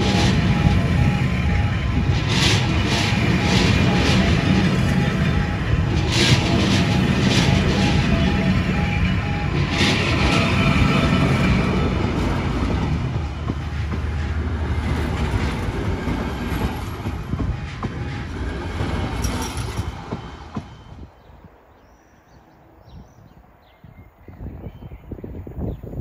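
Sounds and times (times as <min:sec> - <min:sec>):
wheels clacking over rail joints: 0:00.0 - 0:21.0
train carriages rumbling past: 0:00.0 - 0:23.7.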